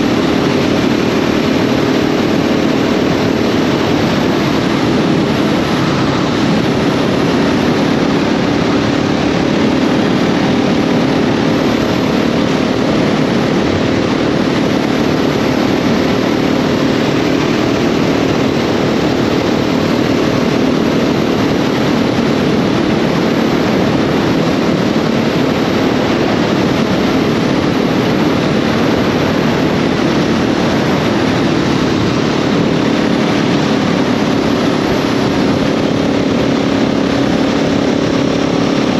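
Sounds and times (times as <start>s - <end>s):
loud rushing noise: 0.0s - 38.9s
motorcycle engine running: 0.0s - 38.9s.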